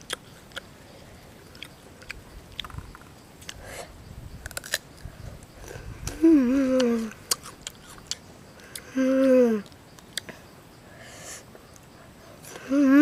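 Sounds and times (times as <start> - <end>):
crunching fruit bites: 0.0 - 0.7, 1.5 - 3.6, 4.4 - 5.1, 6.8 - 8.9.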